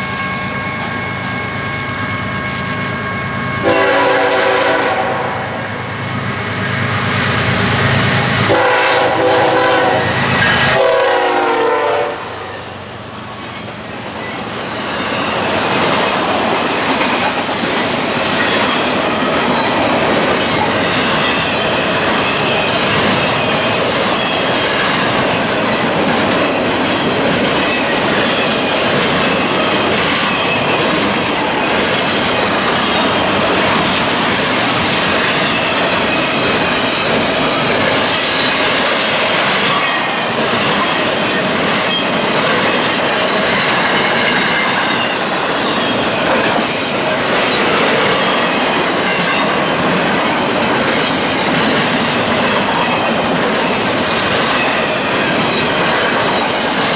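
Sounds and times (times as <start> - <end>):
high wheel squeal: 0.0 - 3.9, 26.9 - 50.4
train wheels rumbling on rail: 0.0 - 56.9.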